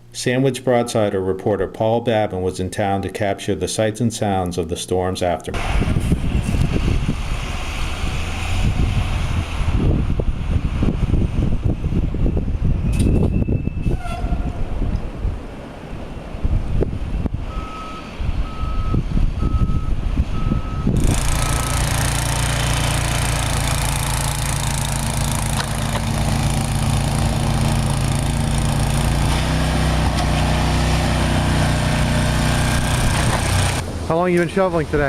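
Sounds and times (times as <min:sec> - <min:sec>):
loud engine drone with hiss: 0:05.6 - 0:11.5, 0:21.0 - 0:35.0
backup alarm beeping: 0:17.5 - 0:22.0.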